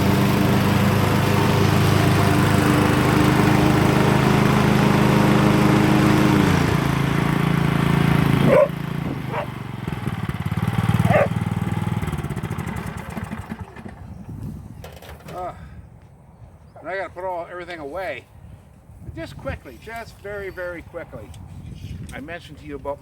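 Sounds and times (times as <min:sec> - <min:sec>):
riding mower engine running: 0:00.0 - 0:15.4.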